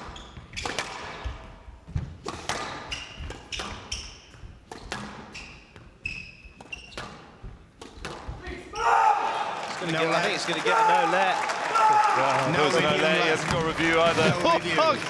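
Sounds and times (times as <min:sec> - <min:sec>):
shoes squeaking on wooden floor: 0:00.0 - 0:00.7, 0:02.8 - 0:08.9, 0:12.6 - 0:15.0
squash ball hits: 0:00.6 - 0:05.4, 0:07.0 - 0:08.6.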